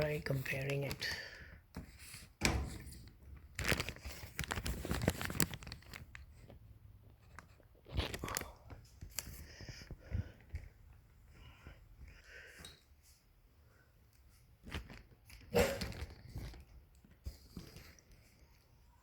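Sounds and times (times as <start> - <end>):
rubber belt rustling and scraping: 1.8 - 11.6, 14.0 - 19.0.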